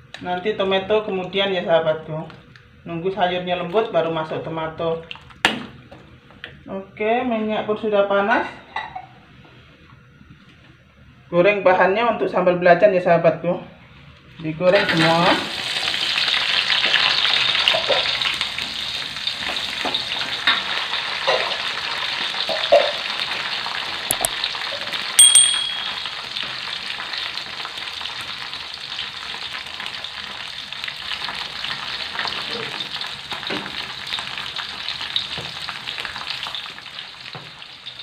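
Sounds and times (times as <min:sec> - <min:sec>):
vegetables frying in hot oil: 0:14.7 - 0:25.2, 0:26.0 - 0:38.0
sharp click with ringing ding: 0:25.2 - 0:26.1.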